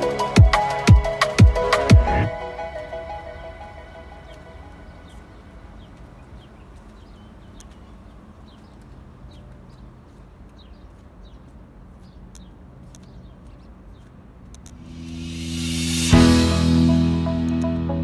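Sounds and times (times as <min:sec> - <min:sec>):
small bird chirping: 0:04.9 - 0:14.9.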